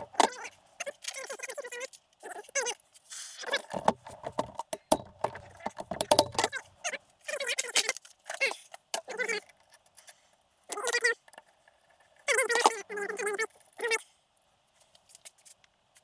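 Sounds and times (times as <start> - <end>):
metal parts and tools clinking: 3.5 - 6.7
sharp knocks: 3.8 - 6.6.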